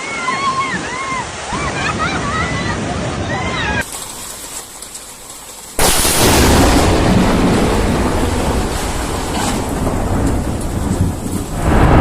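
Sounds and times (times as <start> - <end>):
loud deep rumble: 6.2 - 12.0.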